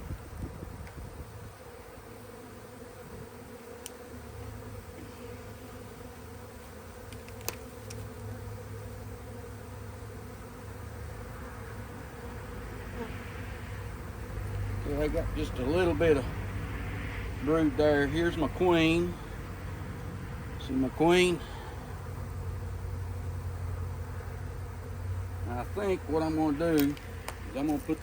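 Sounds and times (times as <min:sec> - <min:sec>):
honey bees buzzing: 0:00.0 - 0:28.0
sharp click: 0:26.7 - 0:27.0.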